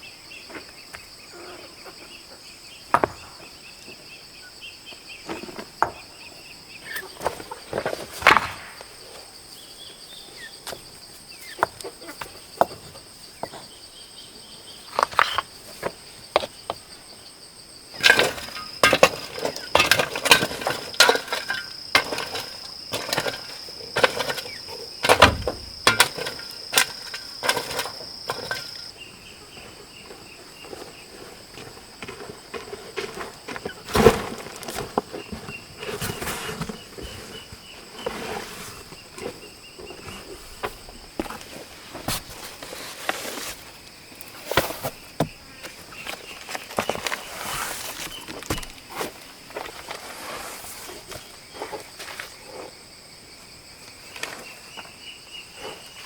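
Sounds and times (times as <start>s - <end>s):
knocks and thuds of hand work: 2.9s - 3.5s, 18.0s - 28.8s, 44.5s - 46.2s, 48.1s - 49.2s.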